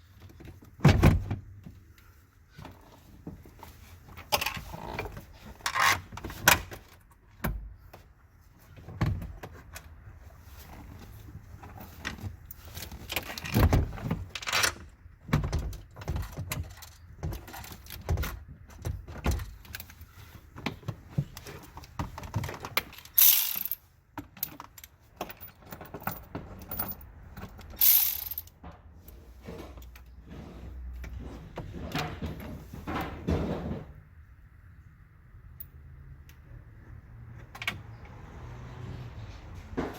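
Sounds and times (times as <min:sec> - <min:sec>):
metallic clicks and rattles of tools: 0:21.8 - 0:28.6.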